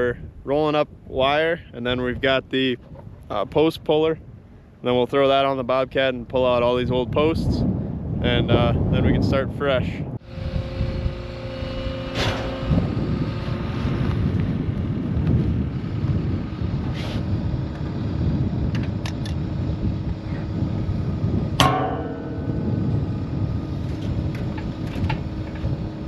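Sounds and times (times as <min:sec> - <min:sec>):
loader engine running: 0:10.2 - 0:26.0
metallic knocks and clanks: 0:21.6 - 0:25.7.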